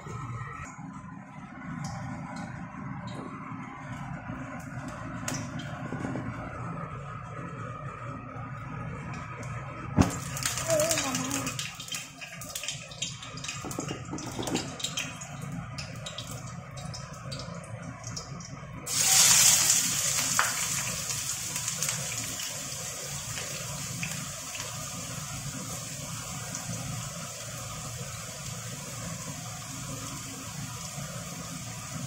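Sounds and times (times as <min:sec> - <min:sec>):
onion sizzling in hot oil: 0:18.9 - 0:32.0.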